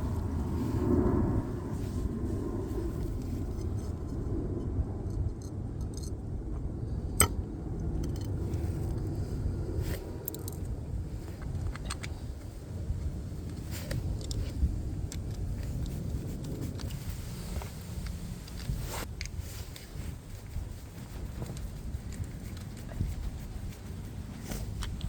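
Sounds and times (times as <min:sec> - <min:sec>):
low rumble: 0:00.0 - 0:25.0
metallic clinks and scrapes: 0:05.0 - 0:06.1.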